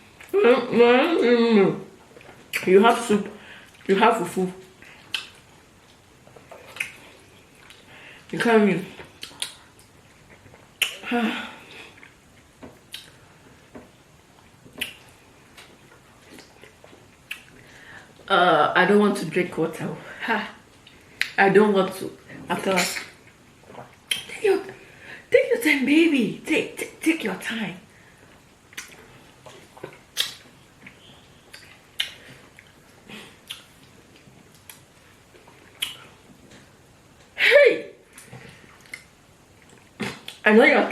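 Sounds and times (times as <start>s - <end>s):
wet eating smacks and clicks: 4.8s - 7.9s, 9.0s - 11.0s, 11.9s - 17.7s, 22.8s - 24.3s, 28.3s - 36.2s, 38.1s - 40.4s.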